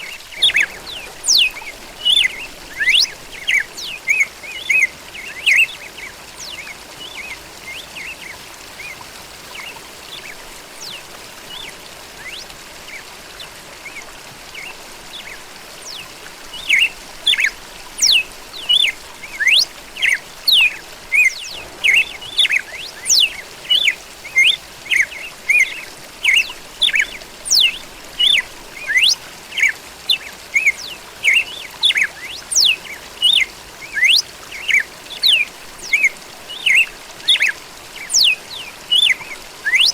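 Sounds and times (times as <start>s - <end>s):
faint bird chirps: 0.0s - 39.9s
steady background hiss: 0.0s - 39.9s
bird singing sharp notes: 16.6s - 25.7s.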